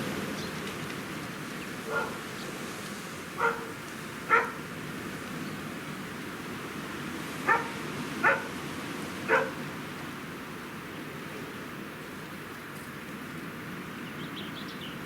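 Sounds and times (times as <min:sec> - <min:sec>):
dog barking: 0:01.9 - 0:02.2, 0:03.4 - 0:04.6, 0:07.4 - 0:08.5, 0:09.3 - 0:09.6.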